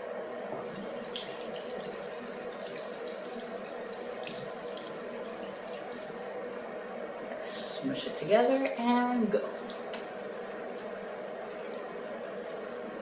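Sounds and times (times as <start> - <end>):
sink tap running: 0.8 - 6.2.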